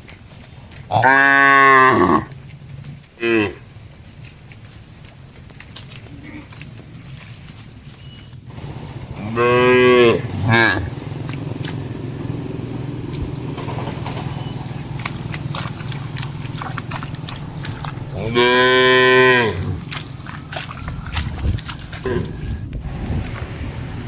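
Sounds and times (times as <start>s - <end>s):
cow mooing: 0.9s - 2.4s, 3.2s - 3.6s, 8.5s - 21.2s
steady low hum: 2.2s - 24.0s.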